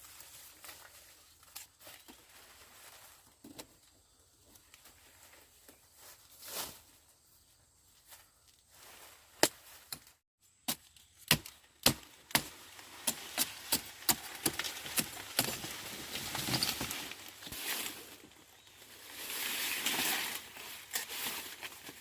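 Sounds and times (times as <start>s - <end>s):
leafy rustling: 0.0s - 3.5s, 4.6s - 10.2s, 12.0s - 22.0s
blade chopping sugarcane: 10.6s - 16.5s.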